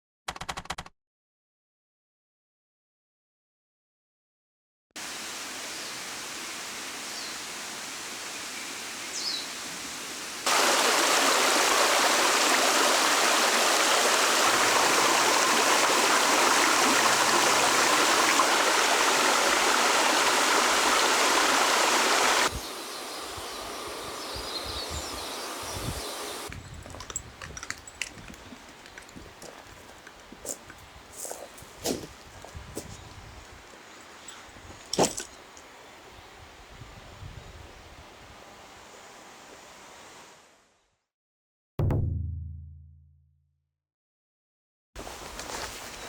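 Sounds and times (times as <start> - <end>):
running water rushing: 5.0 - 36.6
outdoor ambience: 25.2 - 36.1.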